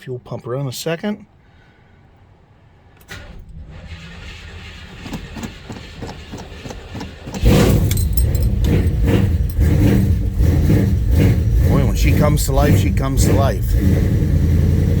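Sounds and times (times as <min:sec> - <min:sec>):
car engine starter cranking: 0:03.0 - 0:14.5
car engine running loudly: 0:04.6 - 0:15.0.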